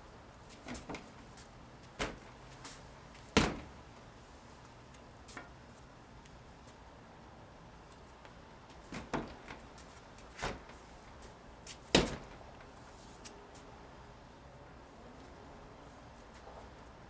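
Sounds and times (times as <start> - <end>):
wooden staff knocks and thuds: 2.0 - 2.3, 3.3 - 3.7, 8.9 - 9.6, 10.4 - 10.8, 11.8 - 12.4.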